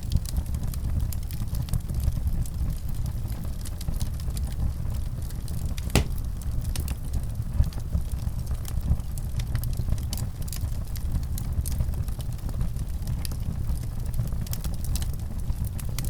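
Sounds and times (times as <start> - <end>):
sharp pop of fire: 5.8 - 6.3
wood fire crackling: 5.8 - 6.8.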